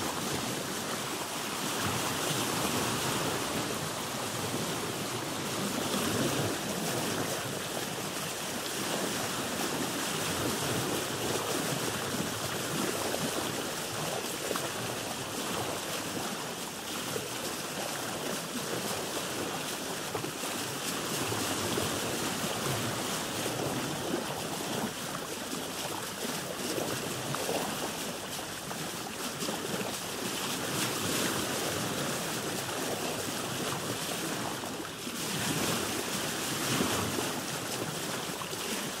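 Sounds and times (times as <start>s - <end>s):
sea waves washing around boat: 0.0s - 39.0s
wind: 0.0s - 39.0s.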